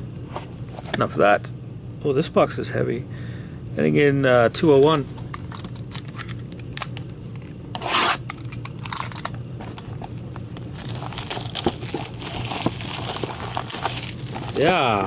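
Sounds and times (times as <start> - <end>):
steady low hum: 0.0 - 15.0
wrapping tearing: 10.3 - 15.0
cardboard box being opened: 10.6 - 14.7.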